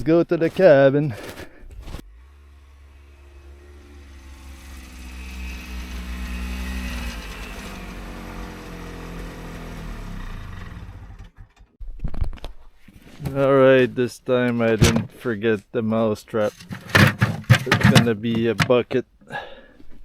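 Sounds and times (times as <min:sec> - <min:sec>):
snowmobile engine running: 0:02.1 - 0:11.4.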